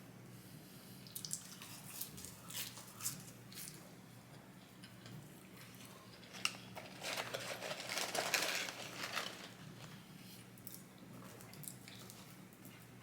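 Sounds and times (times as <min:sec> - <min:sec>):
paper packaging crinkling: 0:06.2 - 0:10.0.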